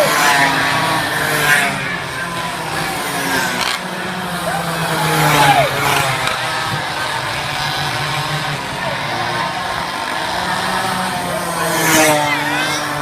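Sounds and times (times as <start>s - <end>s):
minibike engines revving: 0.0s - 13.0s.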